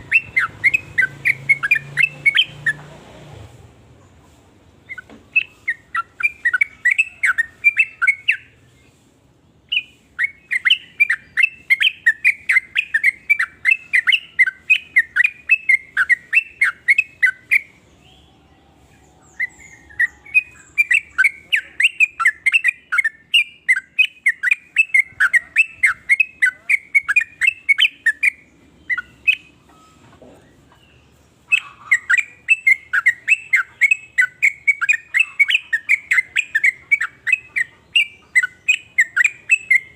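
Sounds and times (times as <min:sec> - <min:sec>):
bulbul chattering call: 0:00.0 - 0:02.9, 0:04.8 - 0:08.7, 0:19.2 - 0:39.9.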